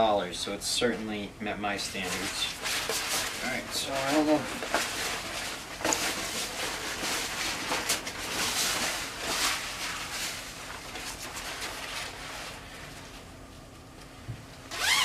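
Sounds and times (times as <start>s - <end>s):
rain suit fabric rustling: 2.0s - 13.2s.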